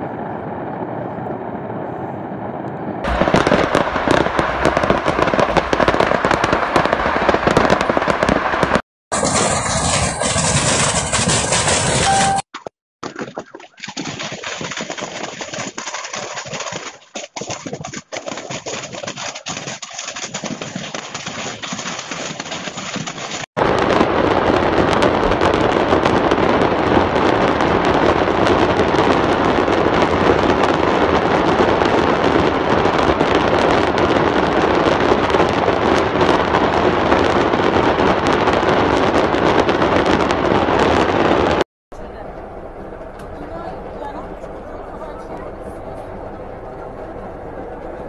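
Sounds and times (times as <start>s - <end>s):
fireworks crackling: 2.6s - 12.5s, 19.3s - 41.6s.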